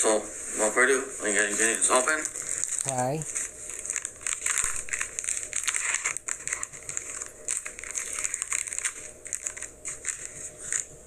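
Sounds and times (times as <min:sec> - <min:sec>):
plastic wrapper crinkling: 0:01.3 - 0:11.0.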